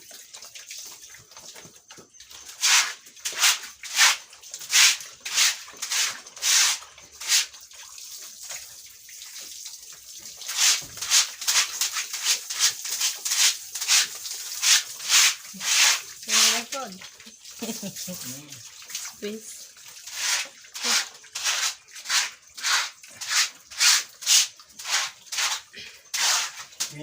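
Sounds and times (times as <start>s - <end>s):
broom sweeping a floor: 2.5s - 7.5s, 10.4s - 16.6s, 20.1s - 26.9s.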